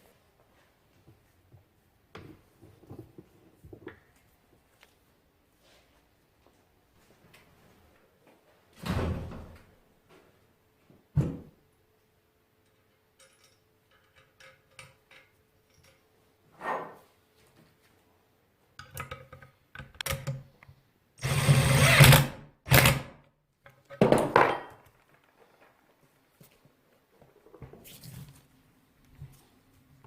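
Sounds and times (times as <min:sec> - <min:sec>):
small power tool bursts: 0:21.2 - 0:23.0.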